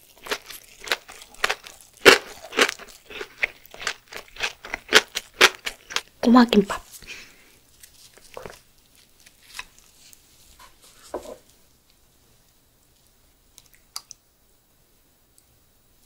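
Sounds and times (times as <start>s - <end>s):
close chewing: 0.0s - 6.1s.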